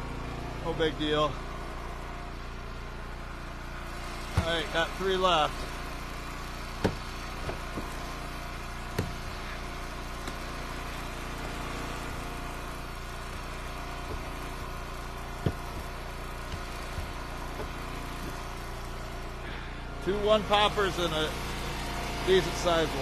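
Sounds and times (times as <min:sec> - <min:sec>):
log splitter engine running: 0:00.0 - 0:23.0
sharp knocks: 0:06.8 - 0:08.0, 0:08.9 - 0:09.4, 0:13.3 - 0:18.4.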